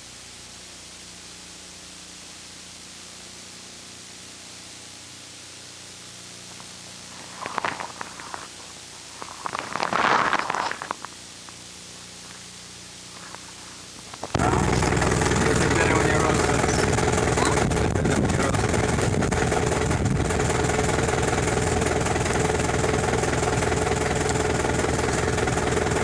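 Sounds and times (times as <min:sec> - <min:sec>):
recording hiss: 0:00.0 - 0:18.9
faint low hum: 0:05.4 - 0:26.0
bursts of rough noise: 0:12.1 - 0:26.0.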